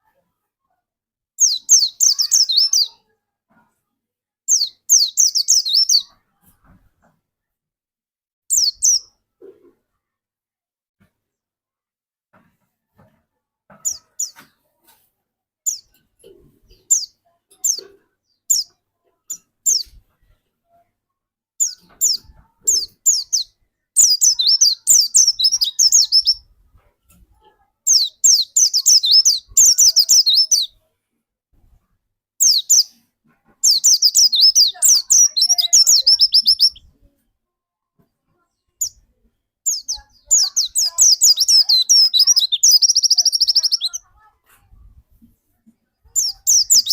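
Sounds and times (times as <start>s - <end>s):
bird chirping and twittering: 1.4s - 3.0s, 4.5s - 6.2s, 8.5s - 9.1s, 13.7s - 14.5s, 15.6s - 16.0s, 16.6s - 18.7s, 19.3s - 20.3s, 21.6s - 26.4s, 27.9s - 30.8s, 32.4s - 33.0s, 33.6s - 36.9s, 39.6s - 44.1s, 46.0s - 46.9s.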